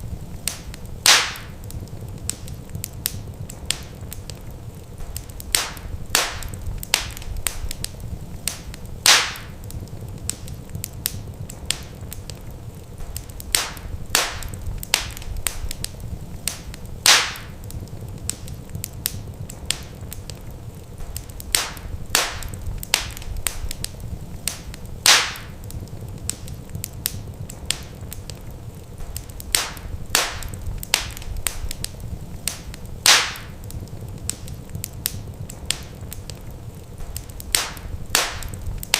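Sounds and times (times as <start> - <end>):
wood fire crackling: 0.0 - 38.9
low rumble: 5.4 - 9.0, 11.2 - 17.0, 19.2 - 25.0, 27.2 - 32.8.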